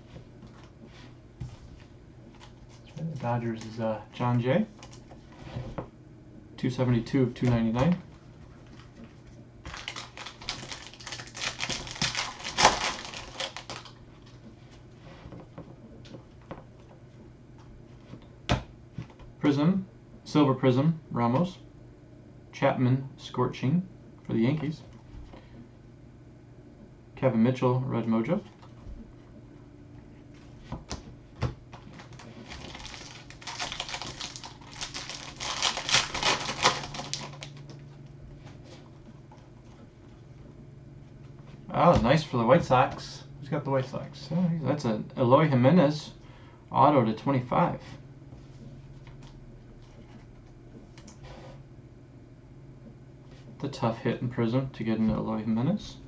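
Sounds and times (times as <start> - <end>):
card pack crinkling: 9.7 - 14.0, 31.8 - 37.8.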